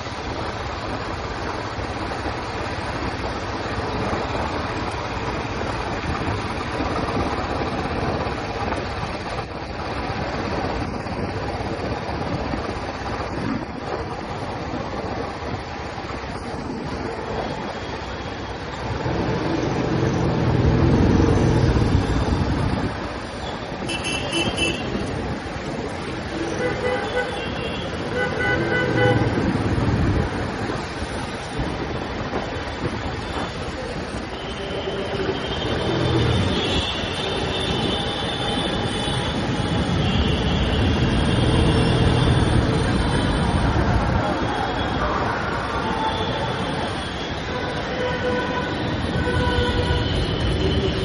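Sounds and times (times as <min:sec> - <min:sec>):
wind and road noise: 0:00.0 - 0:51.0
vehicle horn toot: 0:23.8 - 0:24.9.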